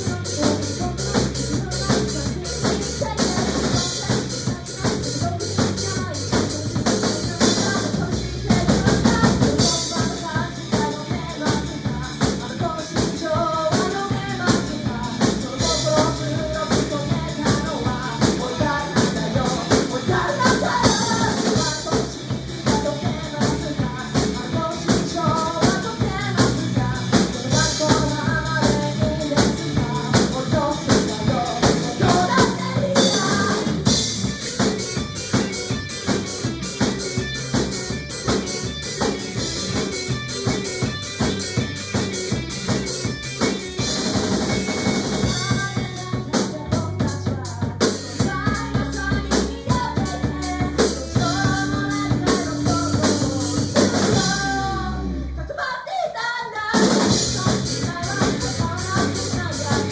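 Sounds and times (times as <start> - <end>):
drum kit beat: 0.0 - 55.4, 56.7 - 59.9
melodic notes: 48.6 - 55.3.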